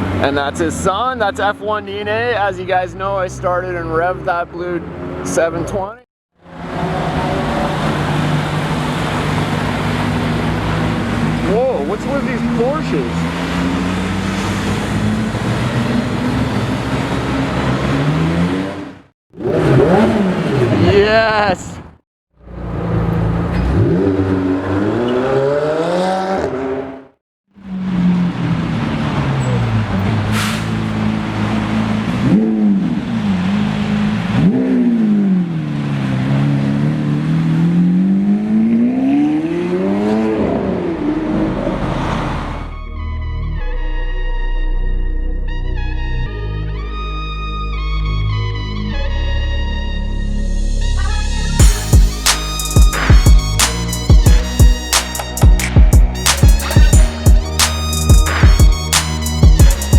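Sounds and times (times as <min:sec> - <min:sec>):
road noise: 0:00.0 - 0:59.9
sports car engines driving past: 0:06.4 - 0:27.0, 0:27.6 - 0:42.8
engine revving: 0:06.4 - 0:43.0, 0:45.6 - 0:59.9.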